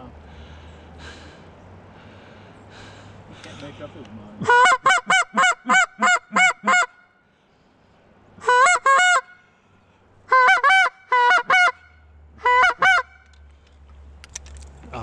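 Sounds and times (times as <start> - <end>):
goose call honking: 4.4 - 7.1, 8.4 - 9.4, 10.3 - 13.2.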